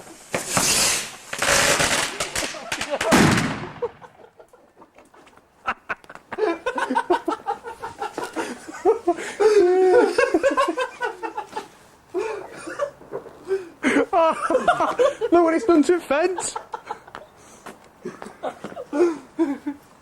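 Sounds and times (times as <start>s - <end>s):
firework fizzing: 0.0s - 4.1s
sharp pops: 0.0s - 4.1s
men laughing loudly: 2.3s - 17.4s, 18.0s - 19.9s.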